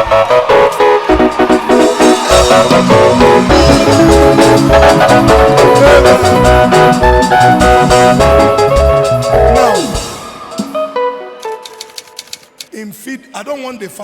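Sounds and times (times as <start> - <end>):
loud music with heavy bass beat: 0.0 - 10.2.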